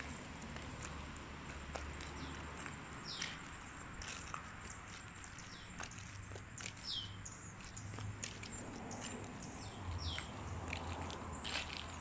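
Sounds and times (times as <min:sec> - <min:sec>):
birds chirping: 0:02.0 - 0:03.8, 0:04.6 - 0:11.8.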